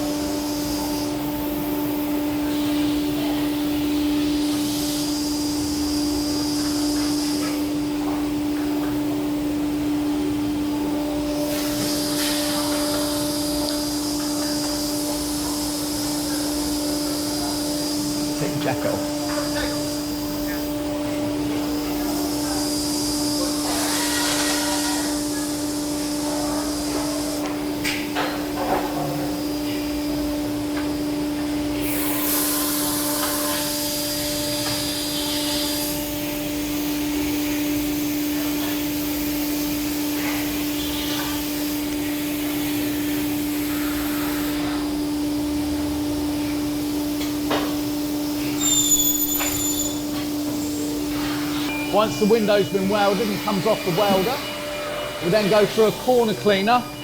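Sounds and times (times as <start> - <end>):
high air hiss: 11.2 - 27.8, 31.7 - 45.3, 46.4 - 57.0
machine hum: 29.3 - 57.0.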